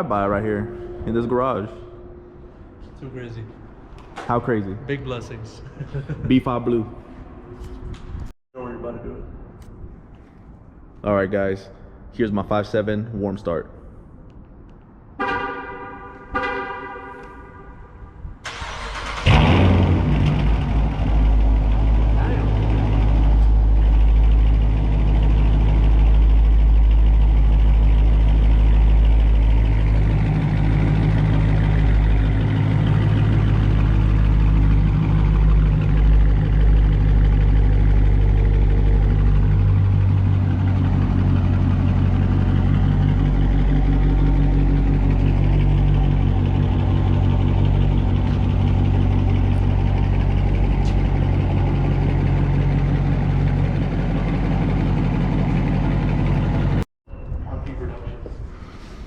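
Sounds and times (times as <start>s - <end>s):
car engine idling: 18.5s - 56.9s.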